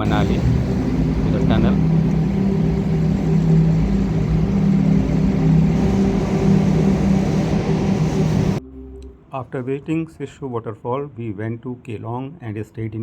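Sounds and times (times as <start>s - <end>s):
car engine hum: 0.0s - 8.6s
road and tyre noise: 0.0s - 8.6s.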